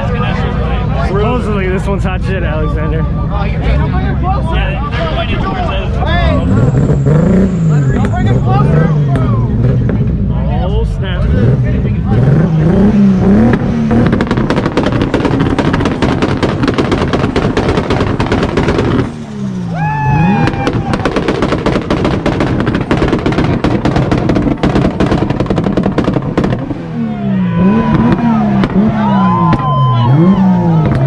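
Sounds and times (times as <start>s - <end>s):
car engine revving: 0.0s - 31.0s
exhaust rapid-fire bangs: 11.3s - 31.0s.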